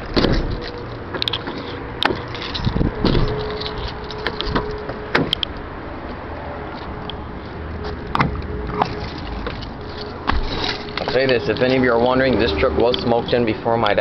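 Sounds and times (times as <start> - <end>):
truck door latch clicks: 4.2 - 5.6.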